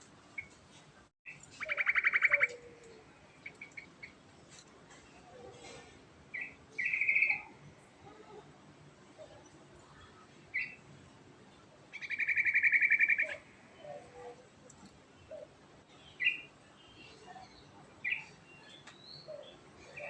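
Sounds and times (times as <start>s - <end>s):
bird chirps: 1.3s - 4.2s, 6.3s - 7.6s, 11.9s - 14.0s, 15.2s - 20.0s.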